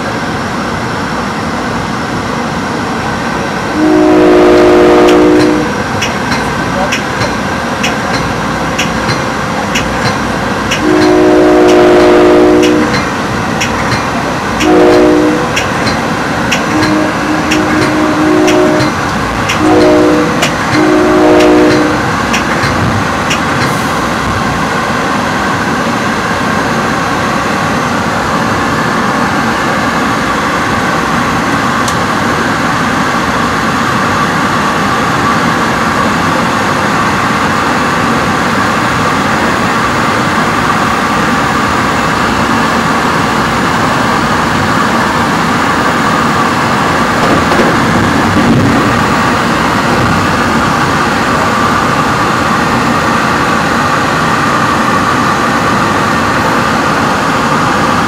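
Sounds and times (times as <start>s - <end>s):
train wheels rumbling on rail: 0.0s - 58.0s
train horn: 3.7s - 5.8s, 10.7s - 13.0s, 14.6s - 15.6s, 16.7s - 22.1s.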